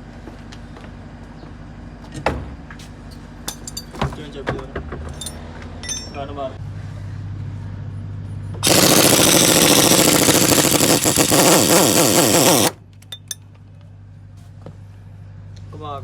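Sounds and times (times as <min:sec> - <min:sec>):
impact wrench rattling: 0:08.6 - 0:13.4.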